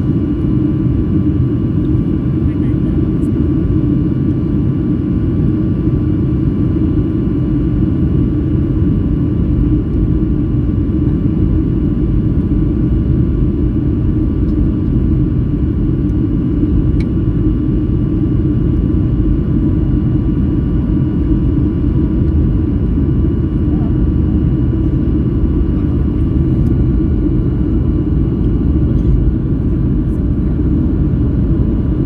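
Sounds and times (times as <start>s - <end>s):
jet cabin engine rumble: 0.0s - 32.0s.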